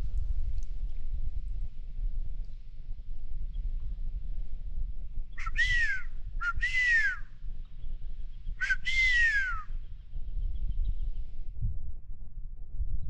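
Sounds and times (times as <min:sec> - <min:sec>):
eagle calling: 0:05.4 - 0:07.3, 0:08.5 - 0:09.9.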